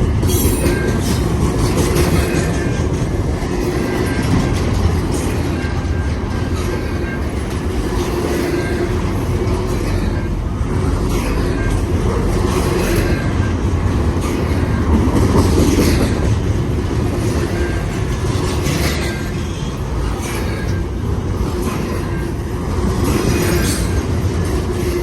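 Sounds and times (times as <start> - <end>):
freight train wheels rumbling: 0.0 - 25.0
wheels clacking on rail joints: 0.0 - 25.0.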